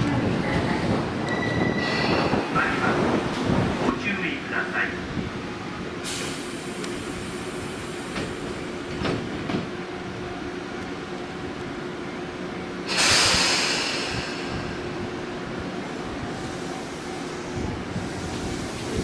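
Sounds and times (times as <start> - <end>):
electric train humming: 0.0 - 19.0
train clunks: 6.0 - 9.9
loud hiss: 12.8 - 14.8.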